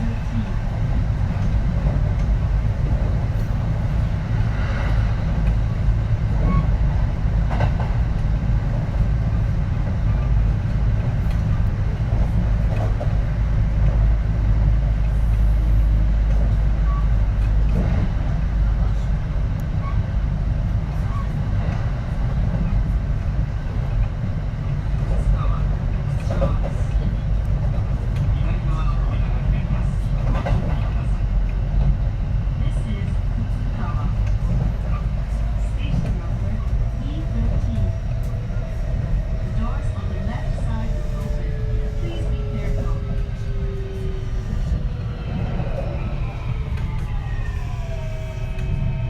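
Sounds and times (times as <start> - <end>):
train wheels rumbling on rails: 0.0 - 49.0.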